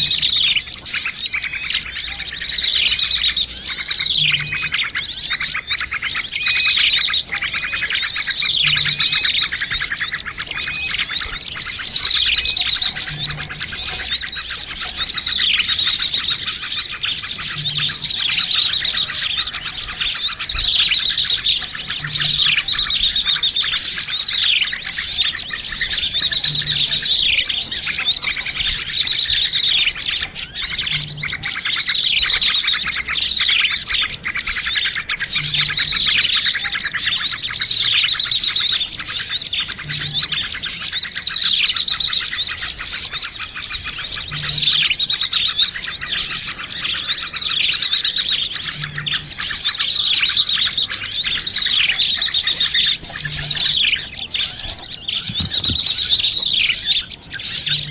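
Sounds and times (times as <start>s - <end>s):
many small birds chirping: 0.0s - 57.9s.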